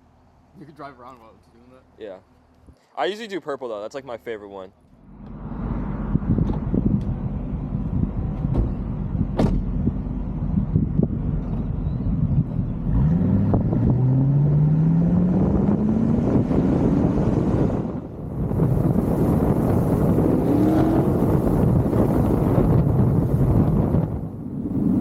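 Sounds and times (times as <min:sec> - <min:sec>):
car engine revving: 0:12.8 - 0:25.0.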